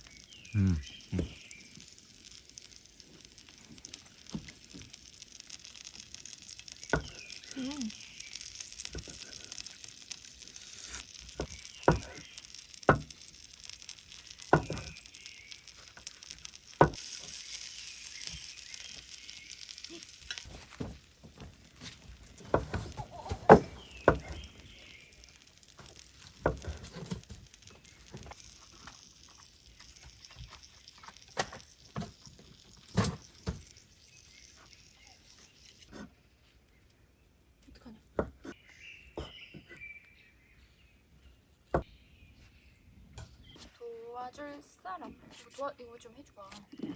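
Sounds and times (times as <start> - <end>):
food sizzling: 0.0 - 36.1.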